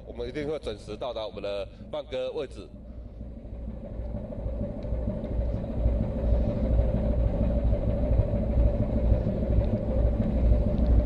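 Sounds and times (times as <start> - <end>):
ship engine drone: 0.0 - 11.0.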